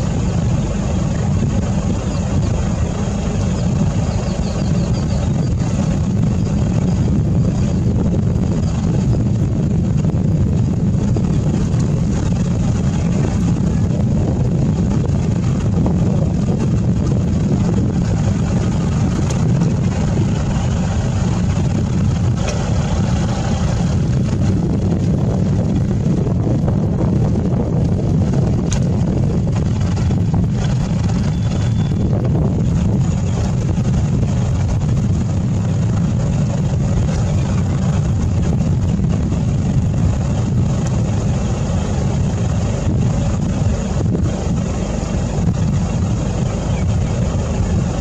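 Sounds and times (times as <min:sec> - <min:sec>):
jeep engine rumbling: 0:00.0 - 0:48.0.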